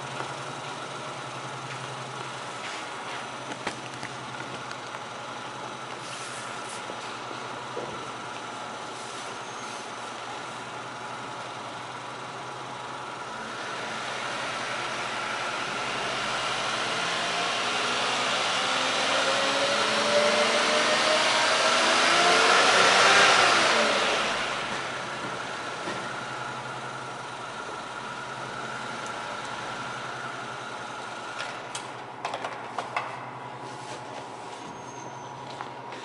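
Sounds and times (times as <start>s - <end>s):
car engine revving: 13.4s - 25.7s.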